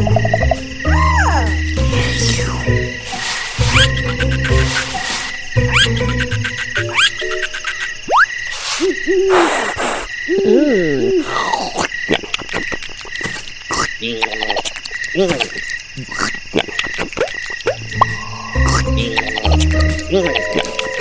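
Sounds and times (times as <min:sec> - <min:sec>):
croaking chirping nature background: 0:00.0 - 0:21.0
high cartoon chirp: 0:03.6 - 0:08.4.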